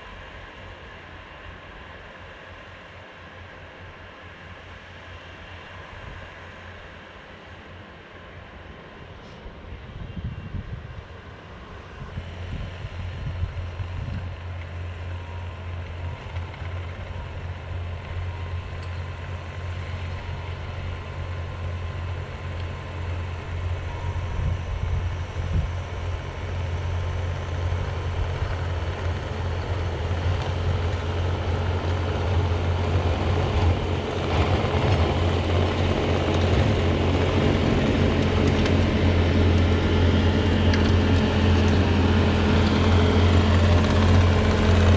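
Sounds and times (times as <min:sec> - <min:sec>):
diesel engine running: 0:12.0 - 0:44.9.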